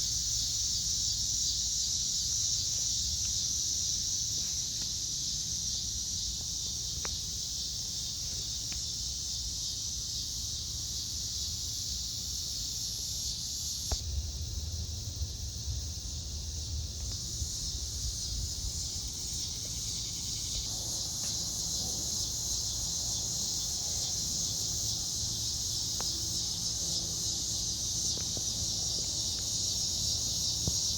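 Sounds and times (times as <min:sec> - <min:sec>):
insects chirring: 0:00.0 - 0:30.9
low rumble: 0:14.0 - 0:19.1.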